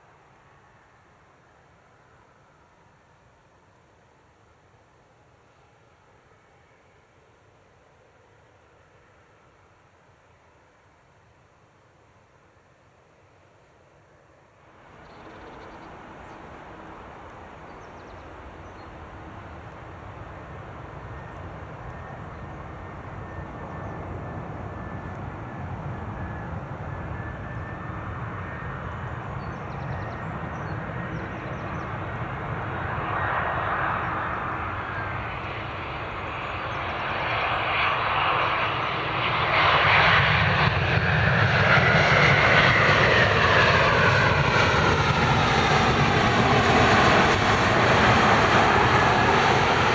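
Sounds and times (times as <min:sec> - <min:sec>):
jet engines on takeoff: 0:14.7 - 0:49.9.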